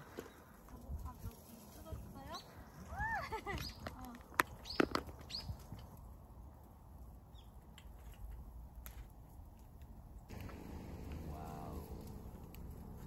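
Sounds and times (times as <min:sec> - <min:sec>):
low steady rumble: 0:10.3 - 0:13.0.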